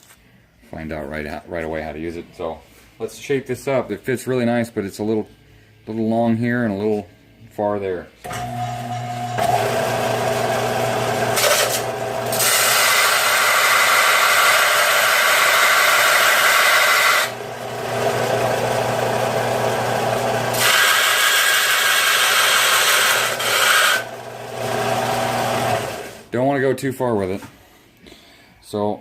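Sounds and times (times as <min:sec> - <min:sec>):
electric grinder grinding steel: 0:08.3 - 0:26.2.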